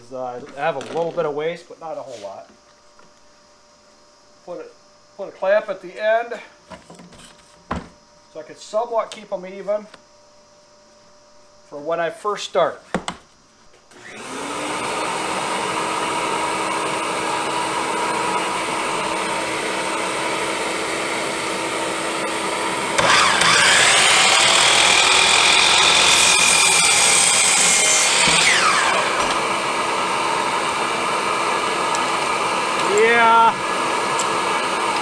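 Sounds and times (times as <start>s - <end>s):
machine hum: 13.9s - 35.0s
miter saw motor whine: 13.9s - 35.0s.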